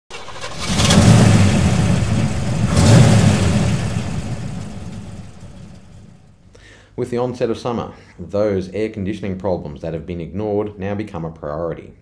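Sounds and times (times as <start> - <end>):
car engine revving: 0.1 - 6.4.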